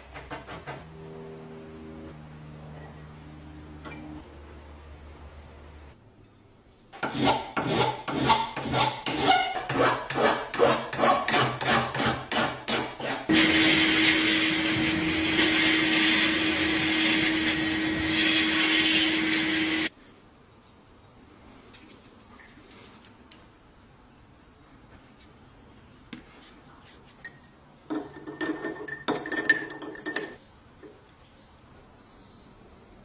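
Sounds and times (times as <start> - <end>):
steady whir with hum: 0.8 - 5.9
hand filing rasping strokes: 7.0 - 19.9.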